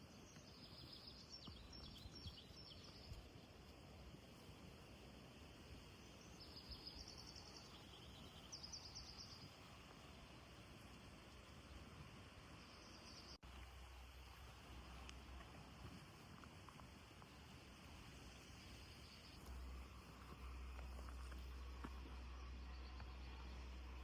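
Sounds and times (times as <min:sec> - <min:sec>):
background hiss: 0:00.0 - 0:24.0
low hum: 0:19.3 - 0:24.0.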